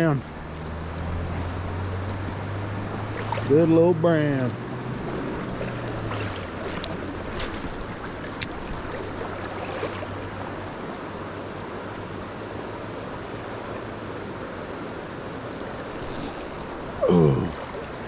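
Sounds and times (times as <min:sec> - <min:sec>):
sharp clicks: 0:15.9 - 0:16.8.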